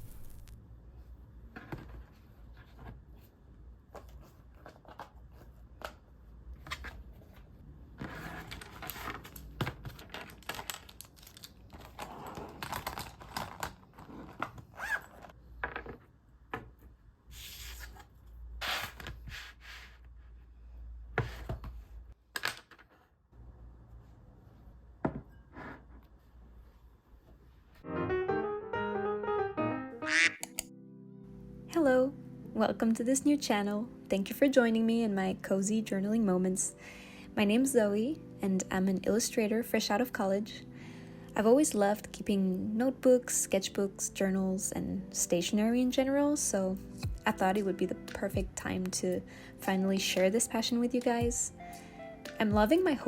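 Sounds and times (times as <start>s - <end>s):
paper crinkling and rustling: 8.0s - 15.3s
stationery taps and clicks: 30.4s - 30.7s.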